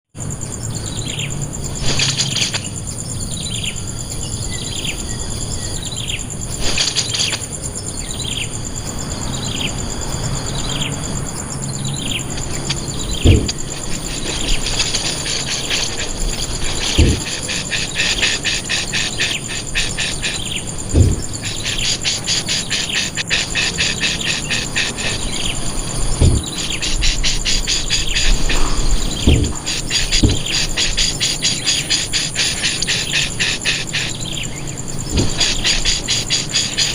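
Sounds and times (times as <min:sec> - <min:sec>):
high-pitched insect drone: 0:00.2 - 0:36.9
birds chirping: 0:00.3 - 0:36.9
fast dense bird chattering: 0:11.6 - 0:36.9
dull low thumps: 0:12.9 - 0:14.6, 0:16.9 - 0:17.4, 0:20.7 - 0:21.7, 0:25.9 - 0:30.8, 0:35.0 - 0:35.6.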